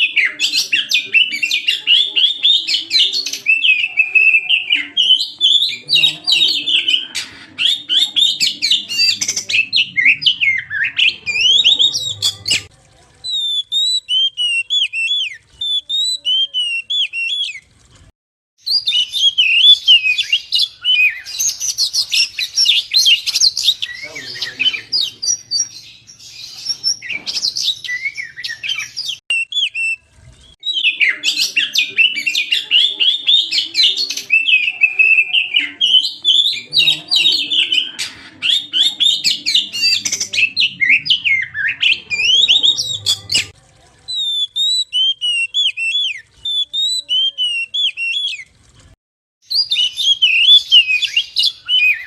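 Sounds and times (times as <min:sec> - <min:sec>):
bird singing whistles and trills: 0:13.3 - 0:17.6, 0:18.6 - 0:30.0, 0:30.6 - 0:43.5, 0:44.1 - 0:48.5, 0:49.5 - 0:52.0.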